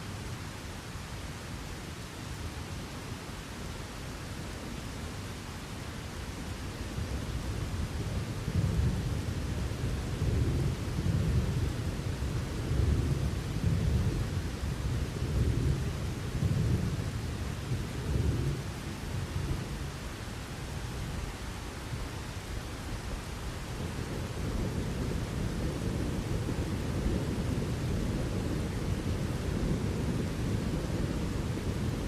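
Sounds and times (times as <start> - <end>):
steady rain hiss: 0.0 - 32.0
rolling thunder rumble: 7.0 - 20.0, 23.8 - 32.0.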